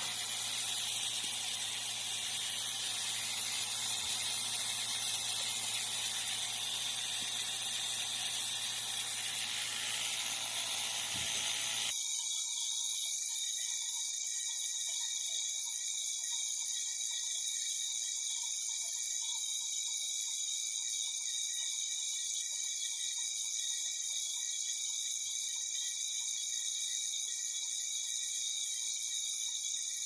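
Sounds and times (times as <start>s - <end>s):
vacuum pump hissing: 0.0s - 11.9s.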